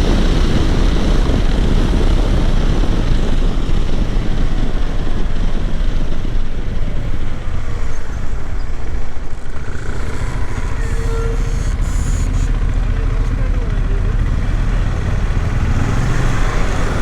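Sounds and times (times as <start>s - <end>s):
motorcycle engine running: 0.0s - 17.0s
wind rushing over microphone: 0.0s - 17.0s.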